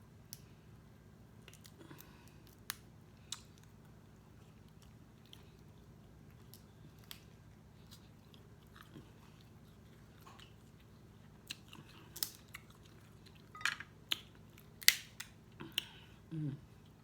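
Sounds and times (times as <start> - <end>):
person chewing and biting food: 1.4 - 14.9.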